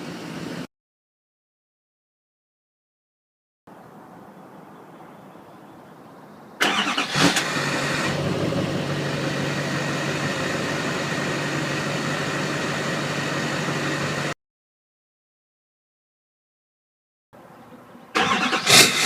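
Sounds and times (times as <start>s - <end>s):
diesel engine starting and idling: 6.6s - 14.4s, 18.1s - 19.0s.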